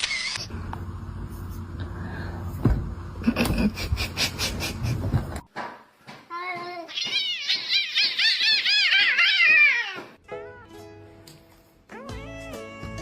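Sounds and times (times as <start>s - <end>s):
cat mewing: 6.9s - 10.2s.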